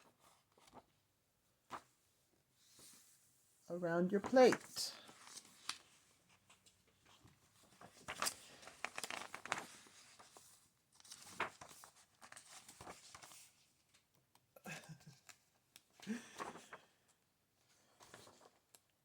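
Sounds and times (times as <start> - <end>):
book pages rustling: 0.0 - 1.0, 4.2 - 14.2, 17.8 - 18.9.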